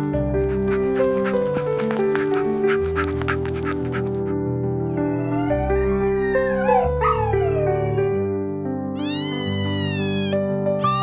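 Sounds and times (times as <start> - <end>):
background music: 0.0 - 11.0
cartoon animal cries: 9.0 - 11.0.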